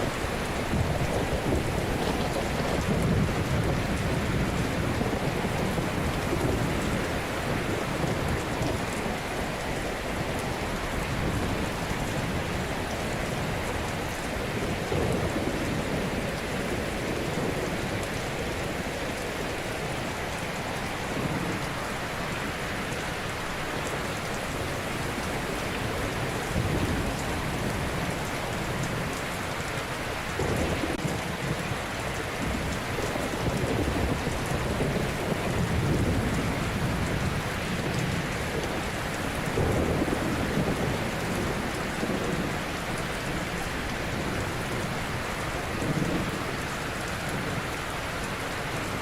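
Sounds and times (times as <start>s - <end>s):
ocean surf waves crashing: 0.0s - 15.4s, 31.8s - 49.0s.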